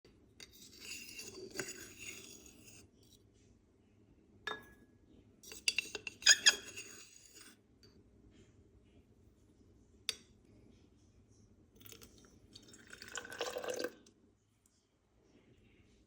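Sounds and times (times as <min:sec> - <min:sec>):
glasses clinking: 0:04.5 - 0:04.8
glassware scraping rattle: 0:05.5 - 0:07.5.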